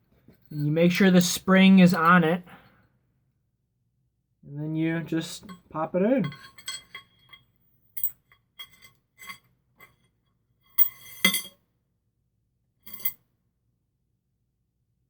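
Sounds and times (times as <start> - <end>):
metal fork parts clinking: 5.4 - 10.0, 12.9 - 13.2.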